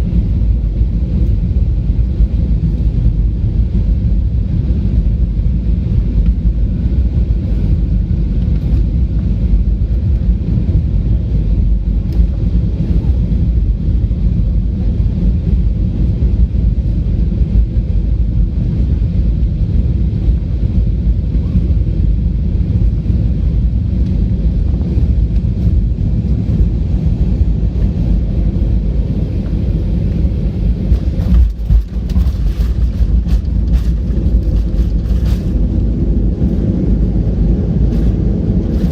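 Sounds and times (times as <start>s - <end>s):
aircraft cabin engine rumble: 0.0s - 38.9s.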